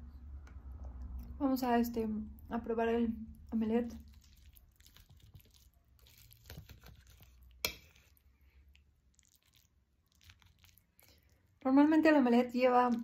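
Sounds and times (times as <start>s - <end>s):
person chewing: 4.0s - 11.6s.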